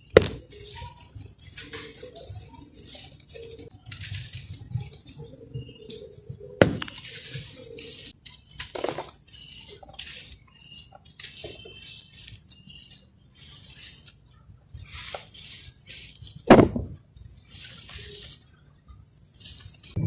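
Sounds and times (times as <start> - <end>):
dry cement crumbling: 6.0 - 12.4.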